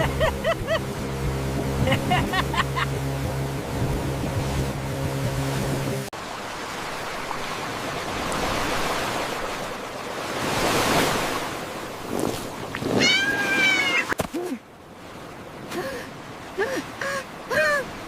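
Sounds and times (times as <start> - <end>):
cat meowing: 13.0 - 14.1.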